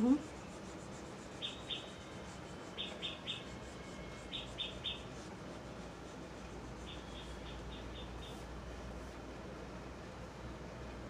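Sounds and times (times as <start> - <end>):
small bird chirping: 1.3 - 5.1, 6.8 - 8.5.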